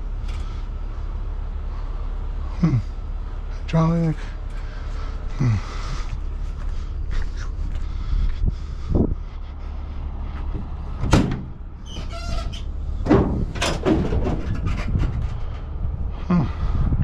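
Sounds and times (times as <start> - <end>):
steady low rumble: 0.0 - 17.0
metal panels knocking and clanking: 10.6 - 15.8
brief squeak: 11.8 - 12.7.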